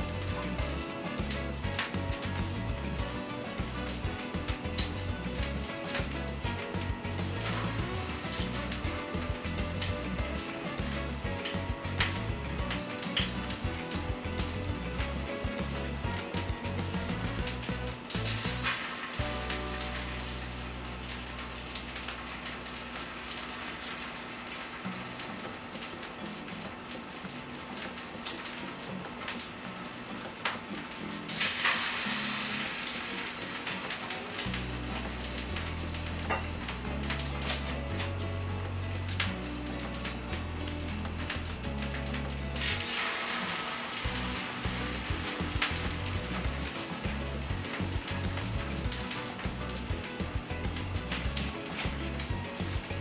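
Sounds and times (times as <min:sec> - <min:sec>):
food sizzling on a griddle: 0:00.0 - 0:53.0
soft background music: 0:00.0 - 0:53.0.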